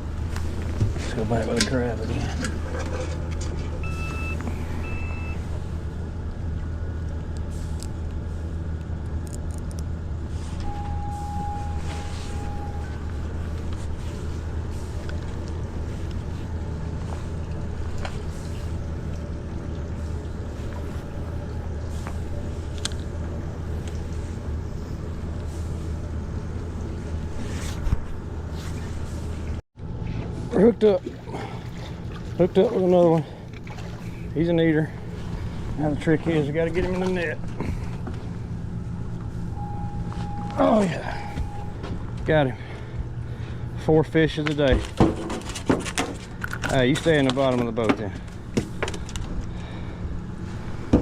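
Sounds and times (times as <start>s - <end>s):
low mechanical drone: 0.0s - 51.0s
brief tone: 3.8s - 5.4s, 10.6s - 13.2s, 39.5s - 42.0s
short beeps: 3.8s - 5.4s, 10.6s - 13.1s, 39.5s - 41.9s.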